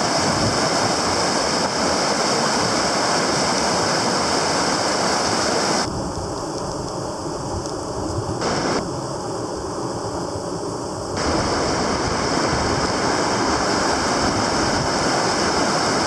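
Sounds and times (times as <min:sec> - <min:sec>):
river rapids rushing: 0:00.0 - 0:05.9, 0:08.4 - 0:08.8, 0:11.2 - 0:16.0.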